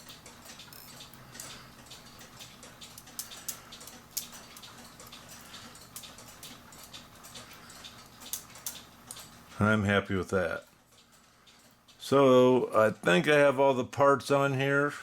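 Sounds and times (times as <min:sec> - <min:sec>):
clock ticking: 0:00.0 - 0:09.7.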